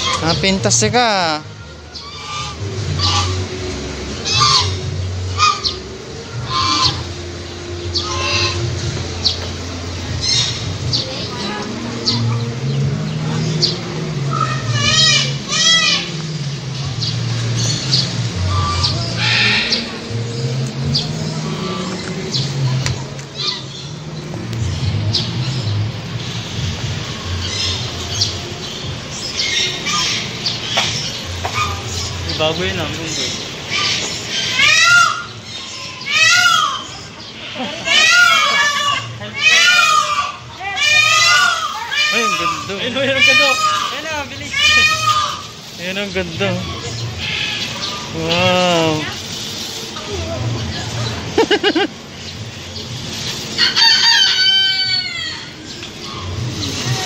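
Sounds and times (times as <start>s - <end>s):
birds squawking: 0.0s - 57.0s
bird honking: 1.9s - 7.2s, 7.8s - 8.9s, 14.2s - 16.2s, 18.4s - 20.1s, 21.0s - 22.0s, 29.4s - 32.2s, 33.7s - 45.8s.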